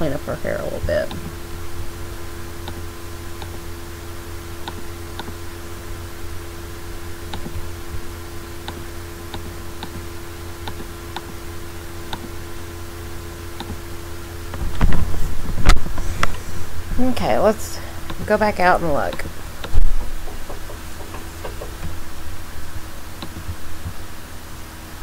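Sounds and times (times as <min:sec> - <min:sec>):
steady electrical hum: 0:00.0 - 0:25.0
computer mouse clicks: 0:02.6 - 0:02.8, 0:04.6 - 0:05.4, 0:07.3 - 0:07.6, 0:08.6 - 0:10.0, 0:10.6 - 0:11.4, 0:12.1 - 0:12.3, 0:13.6 - 0:13.8, 0:23.2 - 0:24.0.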